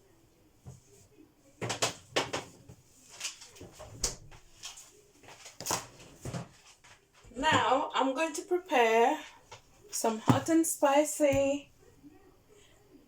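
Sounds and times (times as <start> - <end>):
kitchen knocks and clatters: 1.6 - 2.8, 5.4 - 7.9, 9.5 - 10.7.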